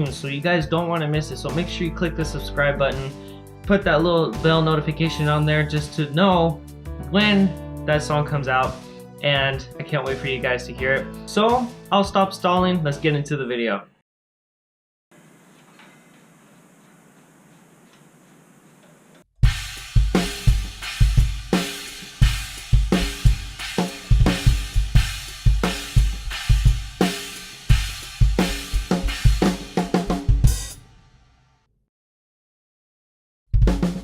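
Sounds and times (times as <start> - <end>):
drum kit beat: 19.4 - 31.0, 33.6 - 34.0.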